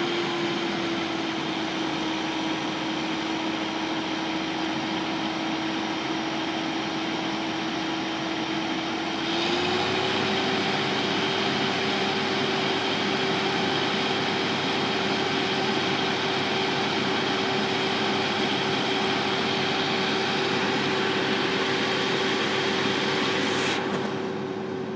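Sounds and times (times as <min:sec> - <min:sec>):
machine humming: 0:17.7 - 0:24.9.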